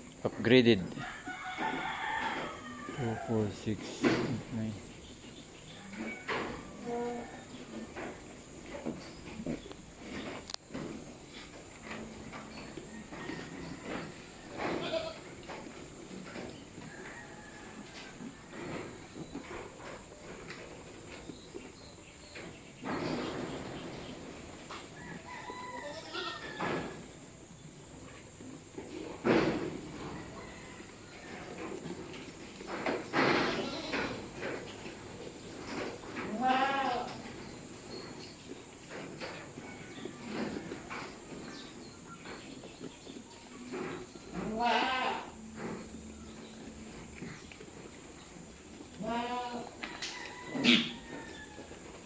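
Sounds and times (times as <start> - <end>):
farmyard noises: 0.0 - 52.0
rooster crowing: 1.0 - 3.4, 25.0 - 27.0, 30.0 - 31.6, 49.8 - 51.9
goats bleating: 14.7 - 15.4, 25.8 - 26.5, 33.4 - 34.4, 36.2 - 37.2, 44.4 - 45.5, 49.0 - 49.8.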